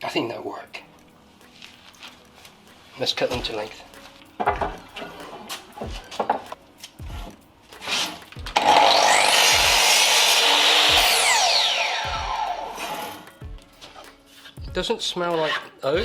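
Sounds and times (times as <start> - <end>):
power saw cutting wood: 7.8 - 13.3.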